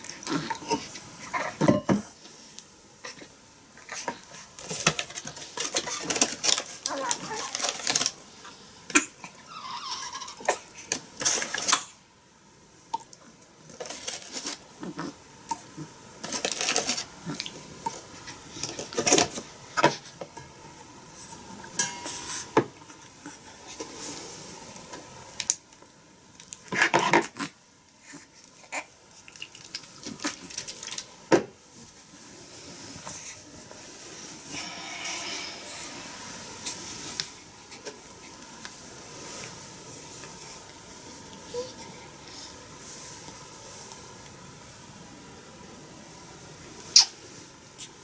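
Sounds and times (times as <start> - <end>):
rustling: 16.2 - 20.2.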